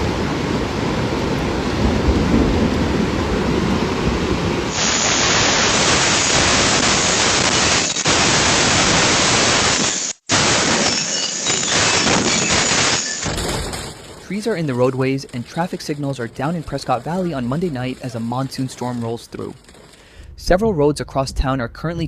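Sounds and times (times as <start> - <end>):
thunderstorm low rumble: 0.0 - 8.9, 13.3 - 22.0
heavy rain hiss: 0.0 - 13.3.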